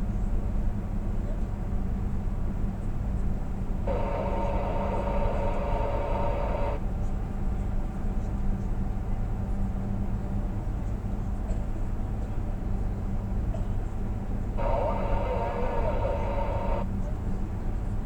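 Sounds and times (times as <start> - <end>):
truck engine and road drone: 3.8 - 6.9, 14.5 - 16.9
buzzing tone: 3.9 - 6.8, 14.6 - 16.8.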